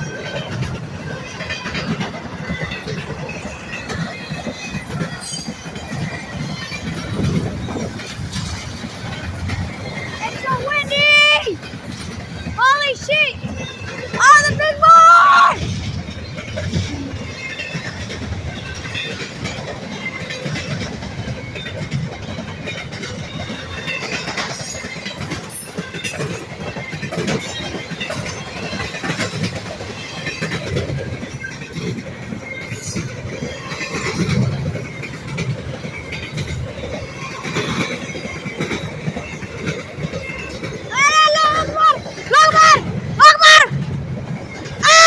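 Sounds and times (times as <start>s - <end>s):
train cars rumbling on rails: 0.0s - 45.0s
wheels clacking over rail joints: 0.0s - 45.0s.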